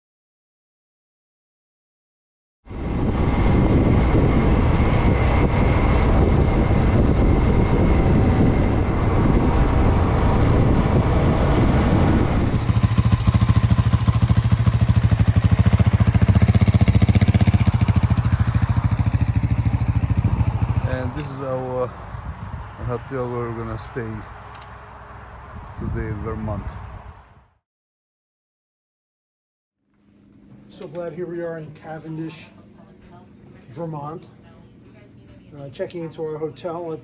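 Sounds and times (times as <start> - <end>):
wind rush: 2.7 - 27.6
motorcycle engine pulsing: 12.2 - 21.4.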